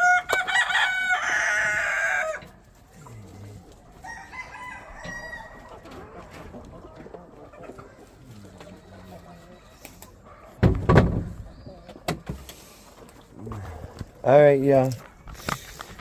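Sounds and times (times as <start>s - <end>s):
rooster crowing: 0.0s - 2.5s, 4.0s - 5.8s.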